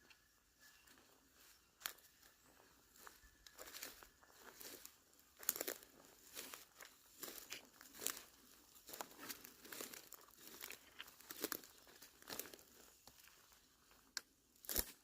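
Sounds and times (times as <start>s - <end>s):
footsteps crunching on forest floor: 0.0s - 15.0s.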